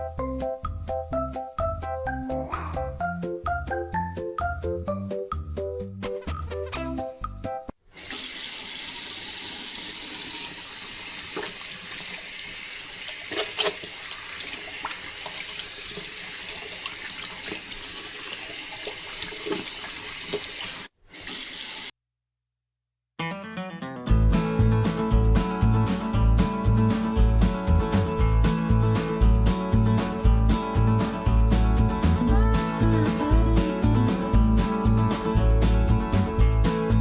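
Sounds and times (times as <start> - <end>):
keyboard music: 0.0 - 7.7, 24.2 - 37.0
water pouring and splashing: 7.9 - 21.9.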